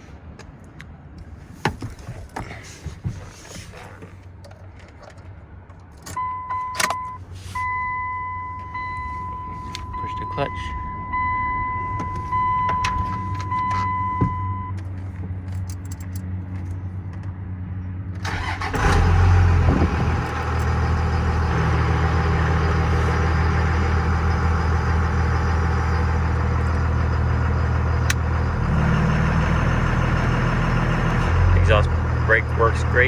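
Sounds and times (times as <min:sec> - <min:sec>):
diesel engine starting and idling: 0:18.2 - 0:33.0.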